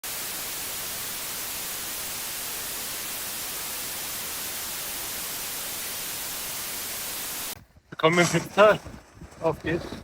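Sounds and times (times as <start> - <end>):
white noise hiss: 0.0 - 7.6.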